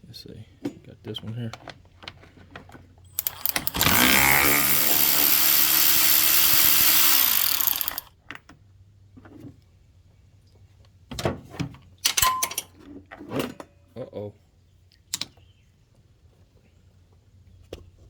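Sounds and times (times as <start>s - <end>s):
cordless power tool running: 3.2s - 8.1s.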